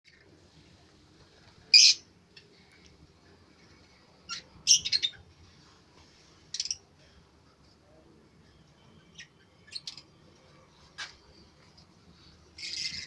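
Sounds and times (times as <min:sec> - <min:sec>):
birds chirping: 0:04.2 - 0:05.3, 0:12.5 - 0:13.0.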